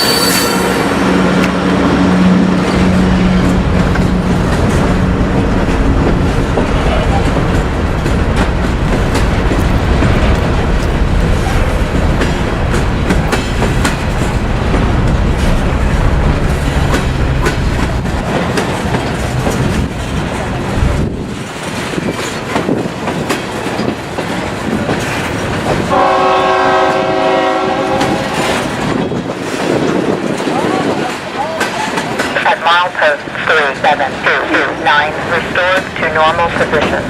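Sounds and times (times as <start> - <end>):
multi-note train horn: 0.0 - 1.5, 25.9 - 28.6
diesel locomotive rumble: 0.0 - 37.0
rail cars clattering over joints: 0.0 - 37.0.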